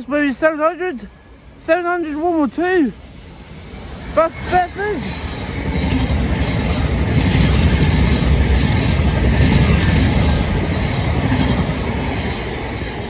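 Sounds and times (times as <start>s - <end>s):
train wheels rumbling on rail: 1.1s - 13.0s.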